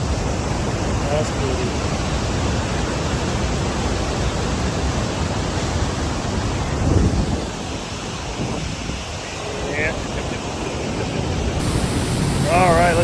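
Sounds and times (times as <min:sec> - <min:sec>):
steady rushing noise: 0:11.6 - 0:13.0.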